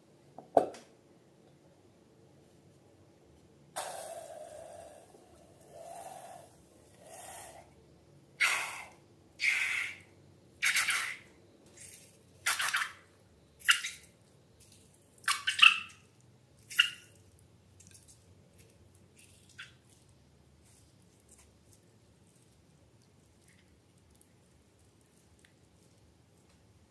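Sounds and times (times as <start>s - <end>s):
slime squelching: 14.6s - 26.8s.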